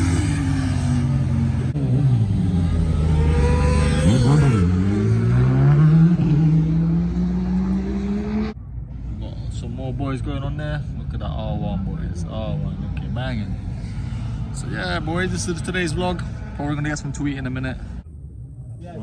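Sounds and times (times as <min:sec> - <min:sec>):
racing motorcycle engines revving: 0:00.0 - 0:08.6.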